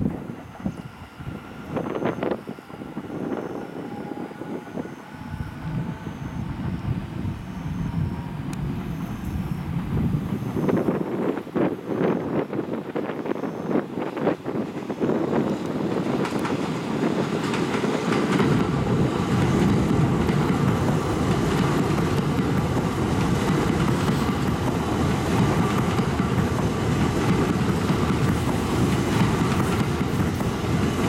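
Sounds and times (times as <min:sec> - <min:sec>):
electric train passing at speed: 0:00.0 - 0:31.0
wheels clickety-clack on rail: 0:08.4 - 0:31.0.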